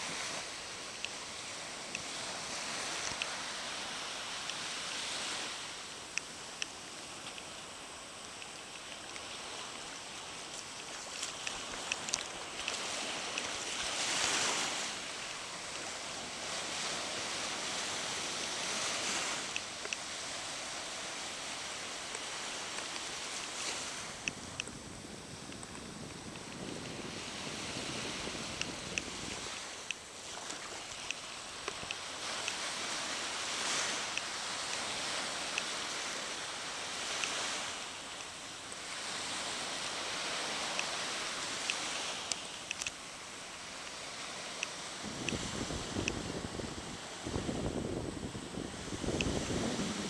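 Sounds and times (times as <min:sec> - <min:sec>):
surf breaking on a beach: 0:00.0 - 0:50.0
faint short clicks: 0:41.6 - 0:43.0.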